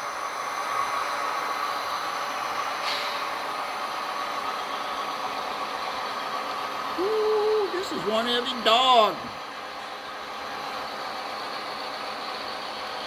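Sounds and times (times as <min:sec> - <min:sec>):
model train running on track: 0:00.0 - 0:13.0
brief high hiss: 0:02.8 - 0:03.2.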